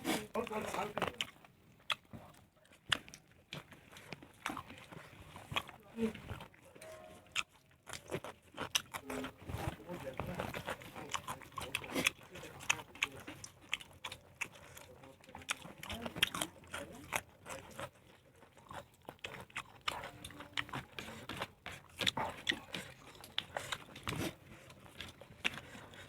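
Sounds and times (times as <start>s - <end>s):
person chewing: 0.0s - 26.0s.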